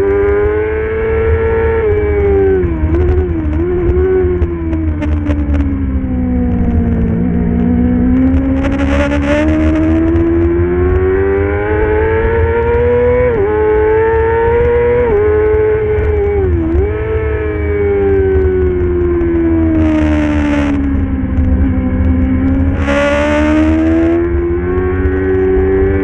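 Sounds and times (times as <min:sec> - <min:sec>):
racing motorcycle engine accelerating: 0:00.0 - 0:26.0
low rumble: 0:02.3 - 0:11.0, 0:14.5 - 0:26.0.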